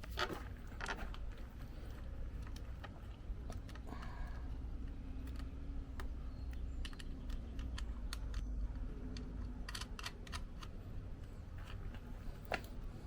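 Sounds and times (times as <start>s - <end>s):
low steady rumble: 0.0s - 13.0s
sharp clicks and light taps: 2.3s - 12.8s.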